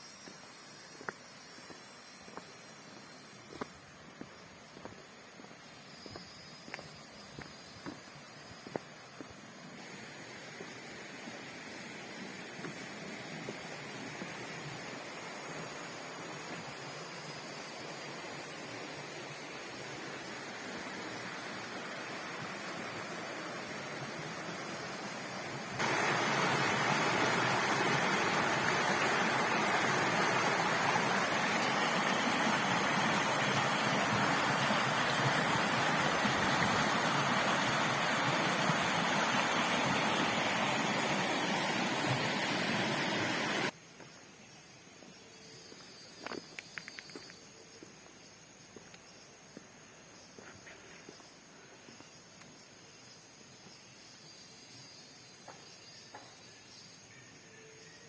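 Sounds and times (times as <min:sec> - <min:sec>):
flowing water rushing: 0:09.3 - 0:43.7.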